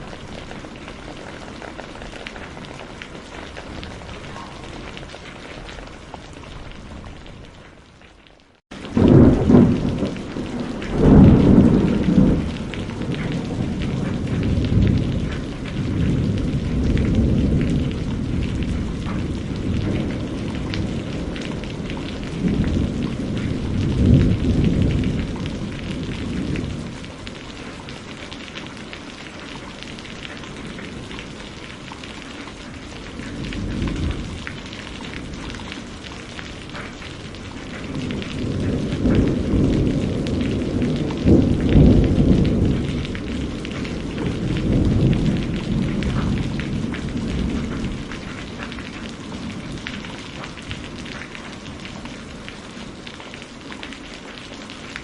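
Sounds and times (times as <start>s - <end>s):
rain pattering: 0.0s - 55.0s
thunder rolling: 8.7s - 27.8s, 32.6s - 52.6s.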